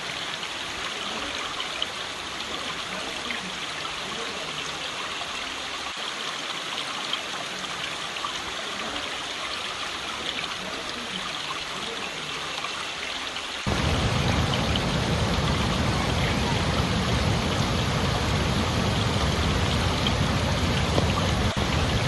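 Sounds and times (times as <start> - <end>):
small water splashes: 0.0 - 22.0
stream water rushing: 0.0 - 22.0.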